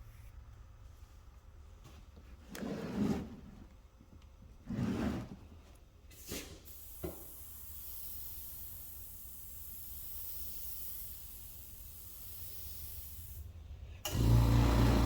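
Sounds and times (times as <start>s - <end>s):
airbrush spraying hiss: 6.2s - 13.5s.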